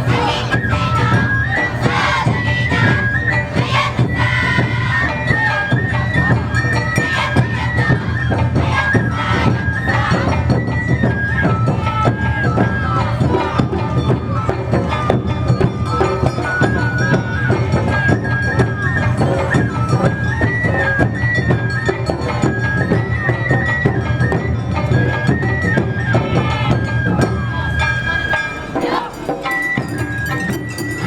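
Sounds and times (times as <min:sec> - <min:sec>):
high melody line: 0:26.4 - 0:31.0.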